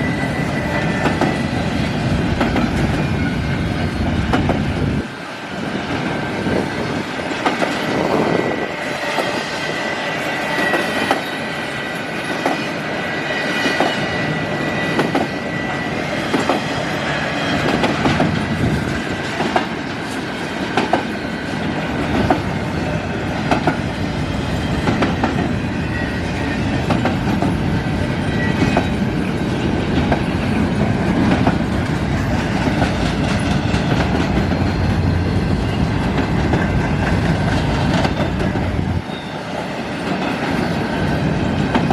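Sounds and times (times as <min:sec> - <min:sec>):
high wheel squeal: 0:00.0 - 0:02.0, 0:02.8 - 0:04.1, 0:07.8 - 0:17.8, 0:24.2 - 0:26.9, 0:33.4 - 0:36.2, 0:38.1 - 0:40.9
freight train rumbling past: 0:00.0 - 0:41.9.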